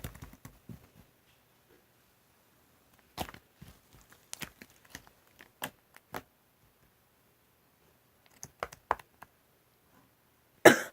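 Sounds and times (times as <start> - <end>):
light irregular clicks and taps: 8.2 - 9.3.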